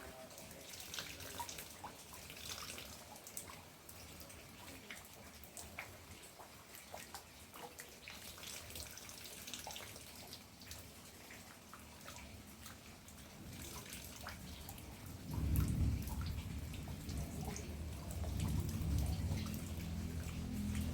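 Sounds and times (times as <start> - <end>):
water drops dripping: 0.1 - 20.9
rain falling: 9.6 - 20.9
low rumble: 15.2 - 20.9.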